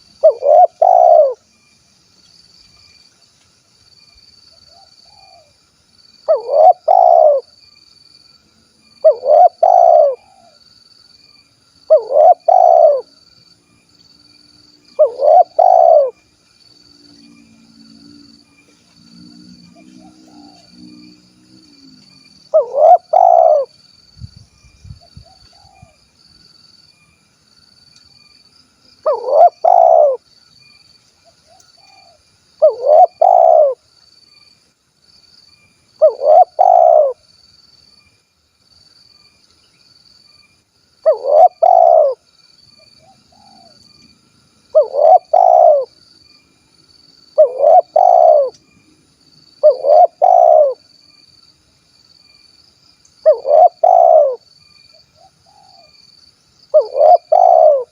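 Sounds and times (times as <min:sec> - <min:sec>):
dove cooing: 0:00.0 - 0:01.4, 0:06.3 - 0:07.5, 0:09.0 - 0:10.6, 0:11.9 - 0:13.1, 0:15.0 - 0:16.2, 0:22.5 - 0:23.7, 0:29.0 - 0:30.2, 0:31.9 - 0:33.8, 0:36.0 - 0:37.2, 0:41.0 - 0:42.2, 0:44.7 - 0:46.0, 0:47.4 - 0:48.6, 0:49.6 - 0:50.8, 0:53.2 - 0:54.4, 0:56.7 - 0:57.9
faint high pulsing chirp: 0:00.0 - 0:57.9.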